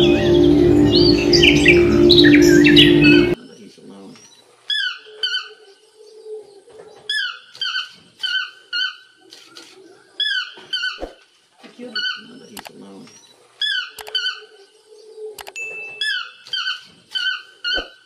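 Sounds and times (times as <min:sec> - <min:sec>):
background music: 0:00.0 - 0:03.4
bird chirps: 0:00.0 - 0:06.2, 0:15.6 - 0:18.0
toucan squeaky calls: 0:04.7 - 0:05.6, 0:07.1 - 0:09.1, 0:10.2 - 0:11.1, 0:12.0 - 0:14.5, 0:15.9 - 0:18.0.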